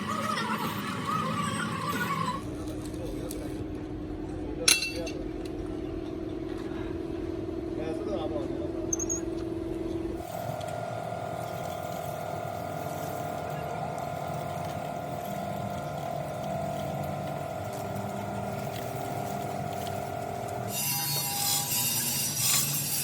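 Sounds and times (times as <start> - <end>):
machine motor whining: 0.0 - 3.0, 10.2 - 23.0.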